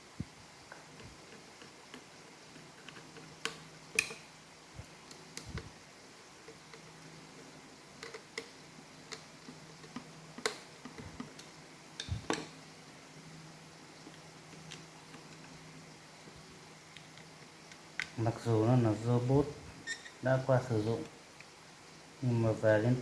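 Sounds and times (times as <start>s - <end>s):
small clicks and taps of parts: 0.7s - 4.3s, 8.0s - 12.5s, 14.0s - 15.6s, 16.9s - 18.2s.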